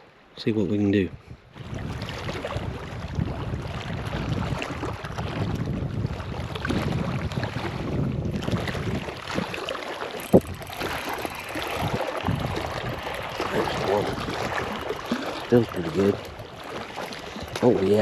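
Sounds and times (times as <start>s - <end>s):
wind buffeting microphone: 1.0s - 18.0s
water lapping at shore: 1.4s - 18.0s.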